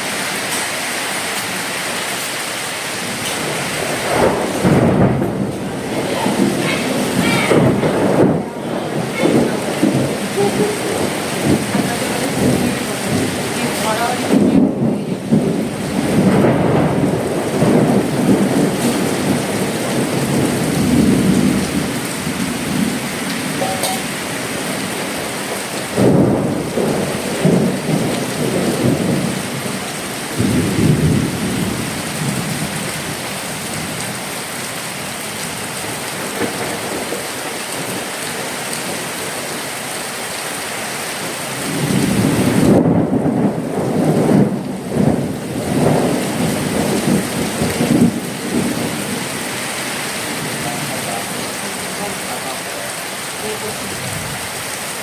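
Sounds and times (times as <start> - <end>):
heavy rain falling: 0.0 - 55.0
loud rumbling: 3.0 - 25.2.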